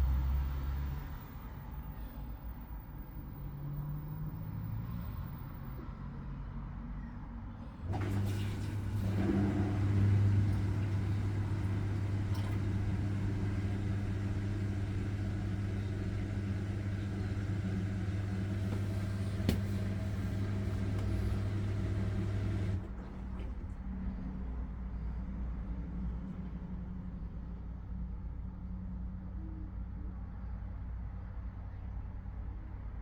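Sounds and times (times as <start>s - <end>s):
washing machine spin hum: 7.6s - 24.4s
washing machine click: 7.9s - 22.9s.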